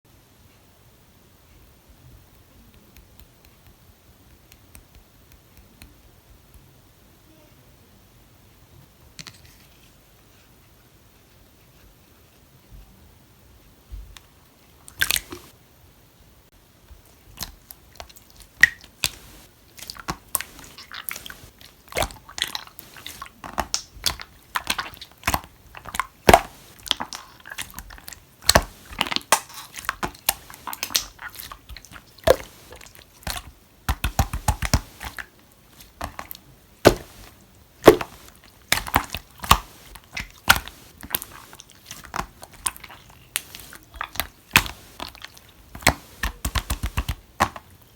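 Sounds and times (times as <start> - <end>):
sticky slime pops and clicks: 26.2 - 27.7, 33.2 - 35.2, 36.0 - 41.3, 43.4 - 45.1, 45.8 - 47.6.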